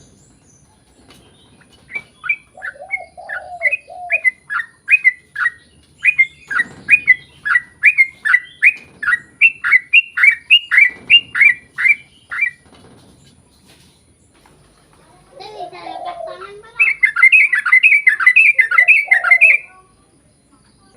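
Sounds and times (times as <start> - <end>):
bulbul singing rapid notes: 16.6 - 19.7.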